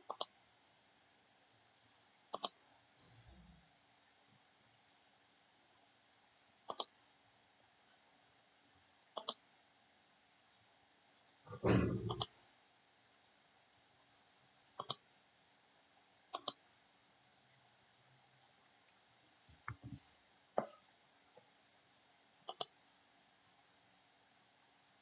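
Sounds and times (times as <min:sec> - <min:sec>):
mouse button clicks: 0:06.7 - 0:06.9, 0:09.2 - 0:09.4, 0:11.8 - 0:12.3, 0:16.4 - 0:16.6, 0:22.5 - 0:22.7.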